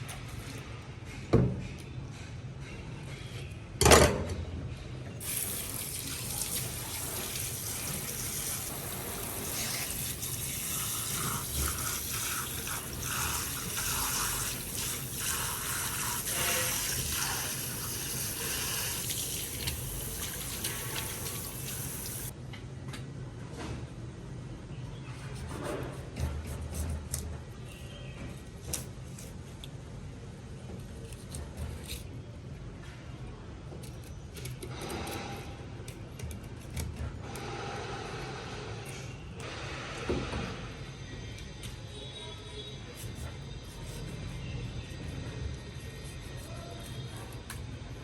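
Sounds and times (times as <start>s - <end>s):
tap water running into sink: 5.2s - 22.3s.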